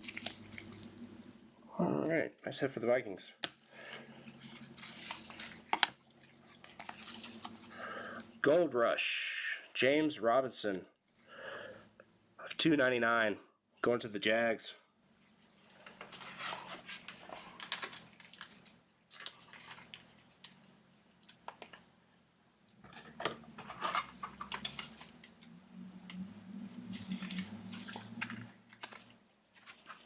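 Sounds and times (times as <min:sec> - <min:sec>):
cards and plastic sleeves rustling: 0:00.0 - 0:01.3, 0:03.4 - 0:08.4, 0:15.6 - 0:21.9, 0:22.7 - 0:25.6, 0:26.8 - 0:30.0.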